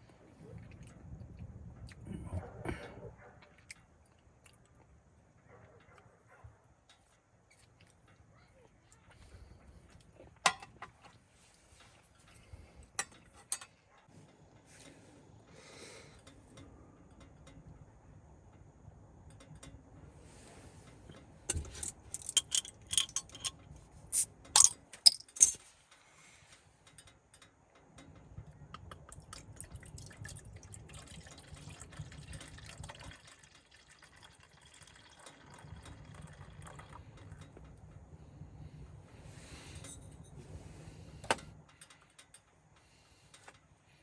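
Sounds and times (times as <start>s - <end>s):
small hard objects clinking: 21.5s - 25.6s
low rumbling background: 35.7s - 41.8s.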